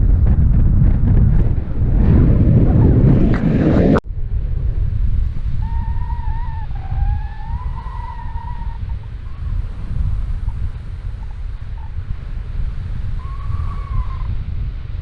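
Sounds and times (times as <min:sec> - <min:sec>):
wind buffeting microphone: 0:00.0 - 0:15.0
faint wavering whistle tone: 0:13.2 - 0:14.3.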